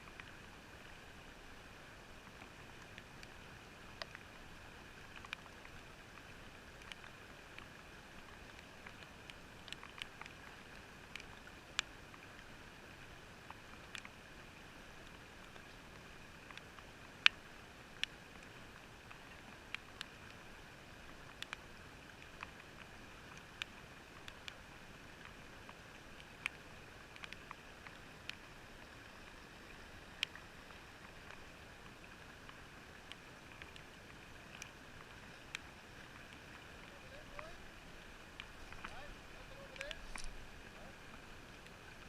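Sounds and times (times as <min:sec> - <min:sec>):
faint steady hiss: 0:00.0 - 0:42.0
muffled clicks and taps: 0:35.3 - 0:41.0.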